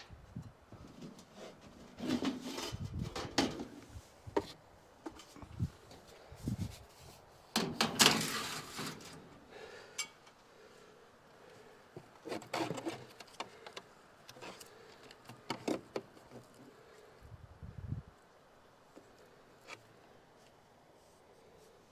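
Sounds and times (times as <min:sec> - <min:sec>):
tools knocking and rattling: 0:07.6 - 0:09.2.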